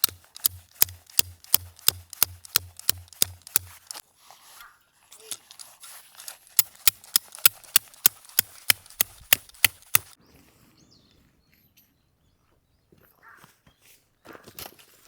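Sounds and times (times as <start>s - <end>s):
rapid sharp knocks: 0.0s - 4.0s, 6.6s - 10.2s.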